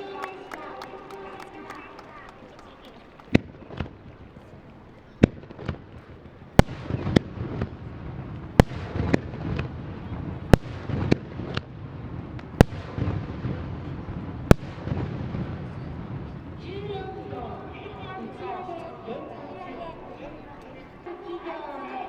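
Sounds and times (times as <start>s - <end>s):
firework bangs with echo: 5.2s - 16.6s.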